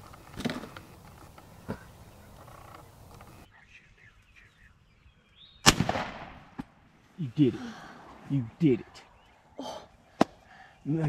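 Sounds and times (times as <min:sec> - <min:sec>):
shotgun shot: 0:05.6 - 0:06.6.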